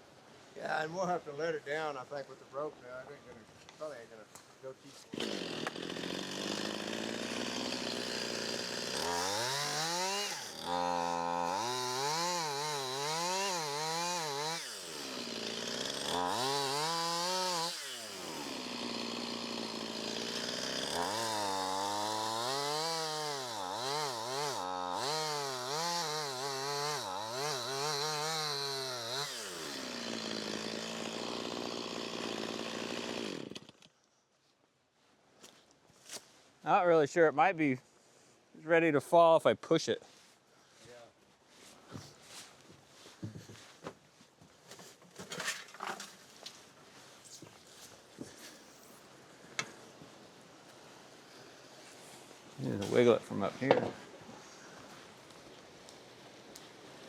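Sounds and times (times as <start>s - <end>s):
chainsaw cutting and revving: 5.0s - 33.7s.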